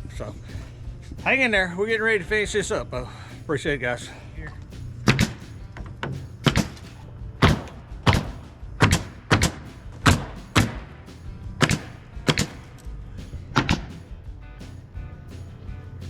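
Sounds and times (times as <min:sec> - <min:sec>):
low steady hum: 0:00.0 - 0:16.0
hammer striking nails: 0:05.0 - 0:14.1.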